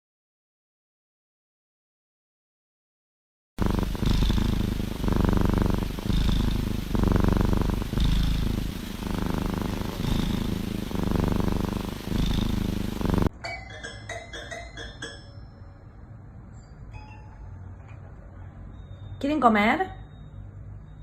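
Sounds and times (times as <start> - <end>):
cat purring: 3.6 - 13.3.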